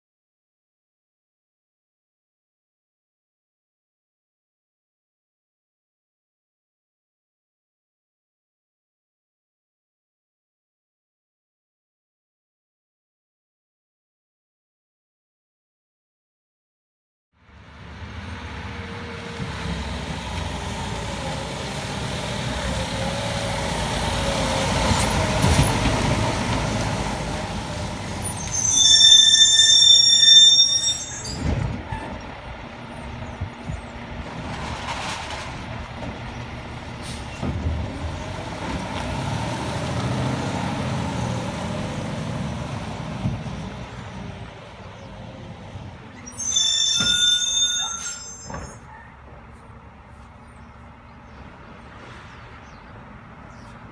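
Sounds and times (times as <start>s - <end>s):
garbage truck engine: 17.9s - 49.5s
loud high-pitched squeal: 28.1s - 32.2s, 46.1s - 49.1s.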